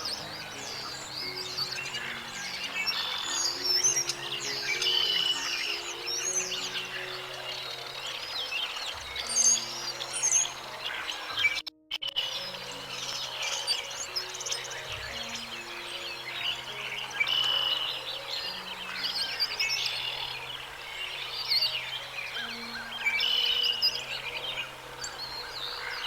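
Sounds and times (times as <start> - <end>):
small birds chirping: 0.0 - 26.0
soft background music: 0.0 - 26.0.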